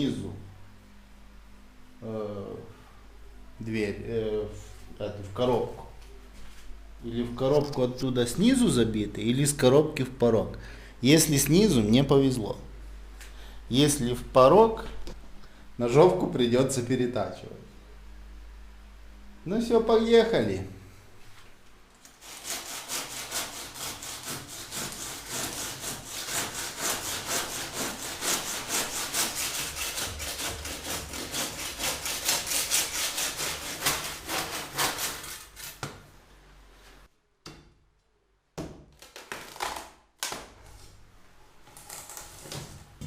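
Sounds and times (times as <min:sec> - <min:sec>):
hand saw cutting wood: 0:22.2 - 0:35.9.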